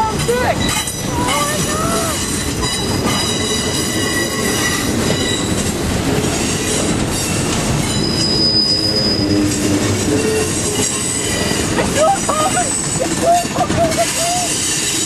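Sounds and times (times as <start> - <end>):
train cars rolling past: 0.0 - 15.0
wheel and rail rumble and clatter: 0.0 - 15.0
high-pitched wheel squeal: 7.9 - 11.7.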